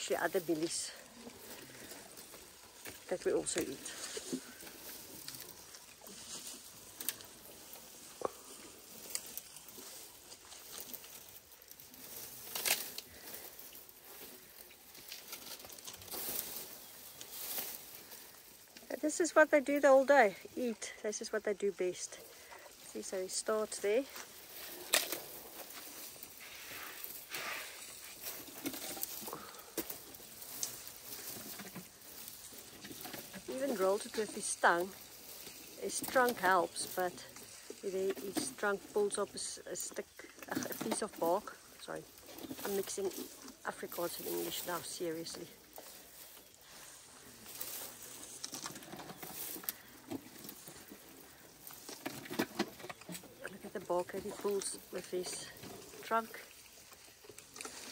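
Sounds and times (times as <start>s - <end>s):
elephant chewing bark: 0.0s - 19.0s, 23.7s - 57.9s
rustling of branch: 0.0s - 57.9s
elephant chewing bark cracks: 4.3s - 18.9s, 24.2s - 33.5s, 56.7s - 57.9s.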